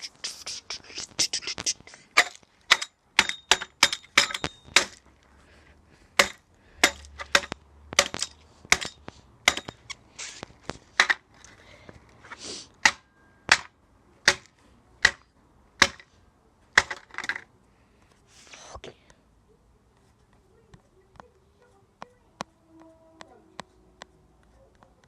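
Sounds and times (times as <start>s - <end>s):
sharp knocks: 6.2s - 9.9s
scraping rustles: 9.8s - 12.5s.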